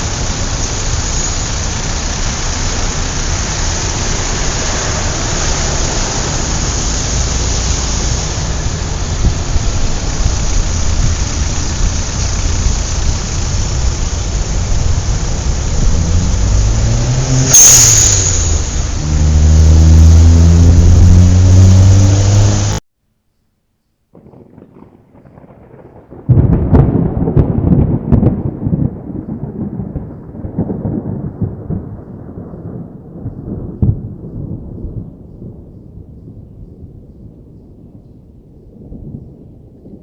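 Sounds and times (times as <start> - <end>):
car engine revving: 0.0 - 22.8
steady hiss: 0.0 - 22.8.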